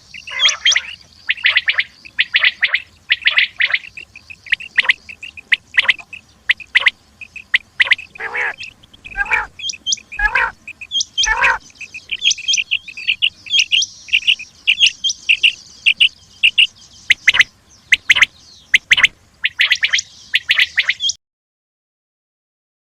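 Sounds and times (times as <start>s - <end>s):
quail calling: 0.0s - 21.2s.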